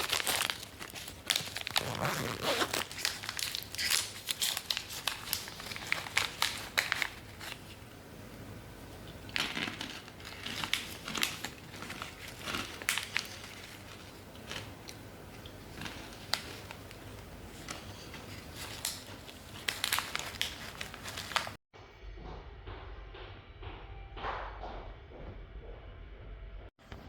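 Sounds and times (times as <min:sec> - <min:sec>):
packaging clicks: 0:00.0 - 0:07.7, 0:09.2 - 0:21.6
snack packaging crinkling: 0:00.0 - 0:07.8, 0:09.1 - 0:21.6.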